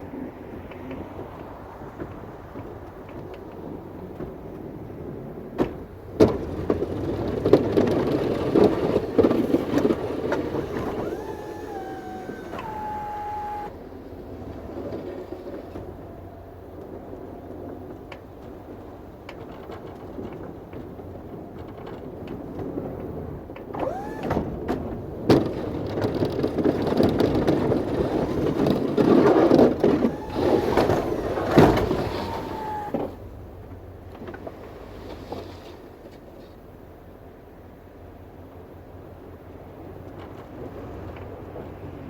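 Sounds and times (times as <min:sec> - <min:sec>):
snow-removal machine running: 0:03.5 - 0:35.6.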